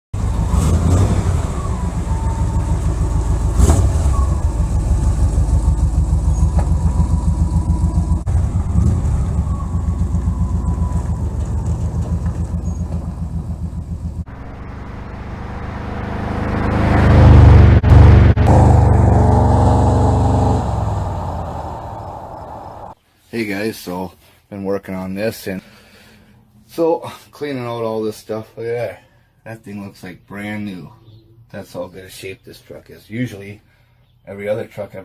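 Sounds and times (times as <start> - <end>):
pickup engine pulsing and revving: 0.2 - 23.0.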